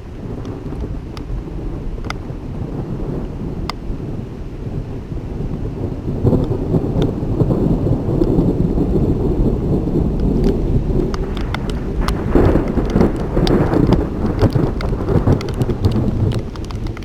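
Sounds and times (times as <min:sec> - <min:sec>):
steady rain: 0:00.0 - 0:17.0
thunder rumbling: 0:00.0 - 0:17.0
sharp ticks: 0:10.2 - 0:17.0.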